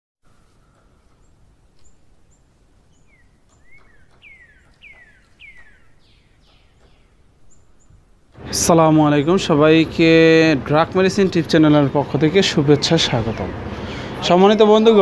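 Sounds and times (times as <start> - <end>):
bird chirping: 0.2 - 8.3
low steady hiss: 0.3 - 15.0.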